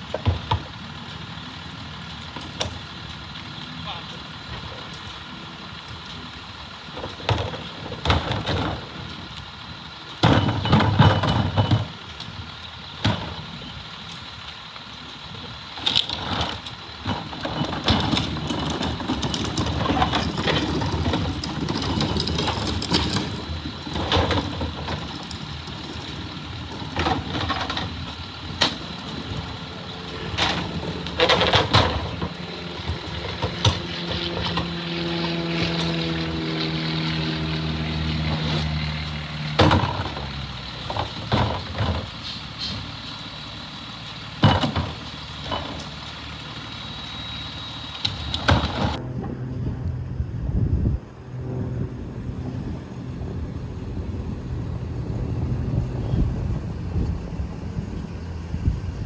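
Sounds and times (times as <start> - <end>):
garbage truck engine: 0.0 - 59.0
loud clanks and bangs: 30.3 - 34.8, 39.5 - 43.1.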